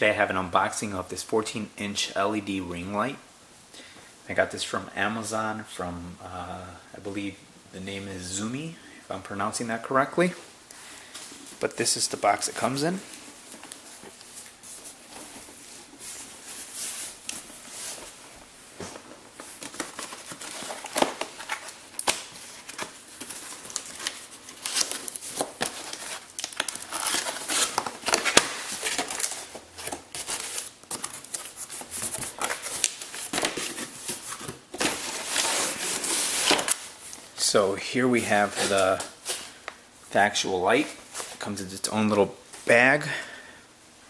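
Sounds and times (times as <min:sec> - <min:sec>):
packaging rustling and crinkling: 0:11.0 - 0:41.5.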